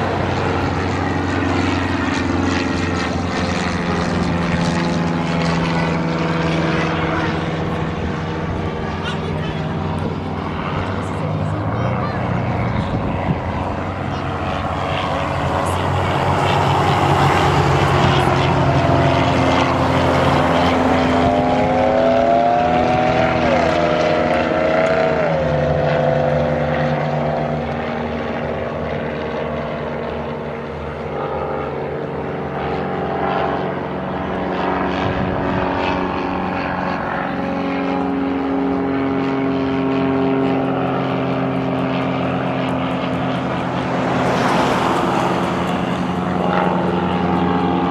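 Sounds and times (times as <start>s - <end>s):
propeller aircraft engines at full power: 0.0s - 47.9s.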